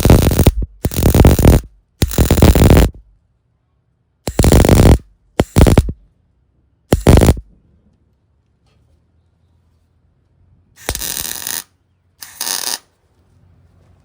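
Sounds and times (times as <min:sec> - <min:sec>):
welding arc crackling and buzzing: 0:00.0 - 0:03.0, 0:04.3 - 0:06.0, 0:06.9 - 0:07.4, 0:10.8 - 0:12.9
faint welder hum: 0:00.0 - 0:03.2, 0:04.2 - 0:06.1, 0:06.9 - 0:07.5, 0:10.8 - 0:13.0.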